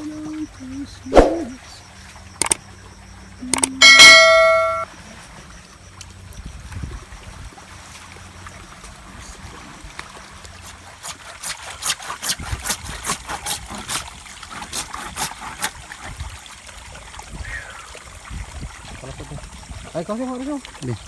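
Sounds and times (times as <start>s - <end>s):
water trickling: 0.0s - 21.0s
loud ringing tone: 3.2s - 4.9s.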